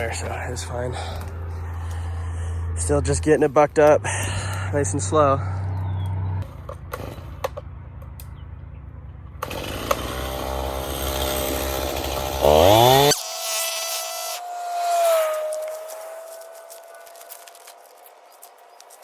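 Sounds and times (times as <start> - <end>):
chainsaw cutting wood: 6.4 - 7.7, 9.4 - 19.0.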